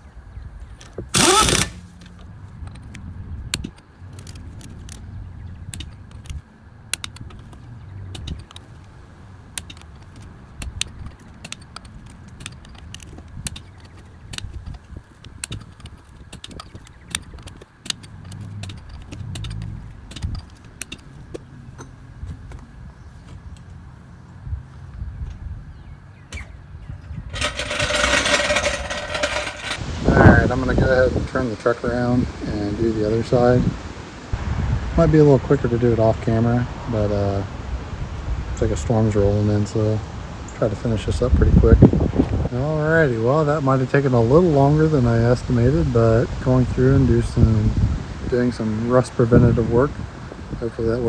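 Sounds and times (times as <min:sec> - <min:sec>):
metal tools clinking: 0:00.6 - 0:03.0, 0:05.7 - 0:22.2, 0:26.4 - 0:29.8.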